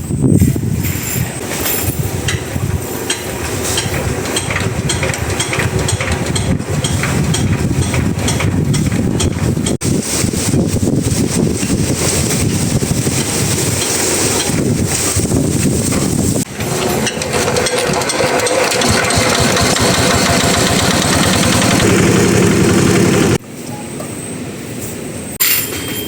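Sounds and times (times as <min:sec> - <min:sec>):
generator engine running: 0:16.1 - 0:23.4.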